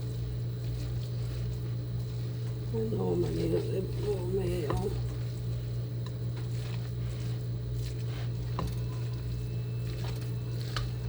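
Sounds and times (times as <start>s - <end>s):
spoon mixing wet food: 0.0s - 11.0s
steady low hum: 0.0s - 11.0s.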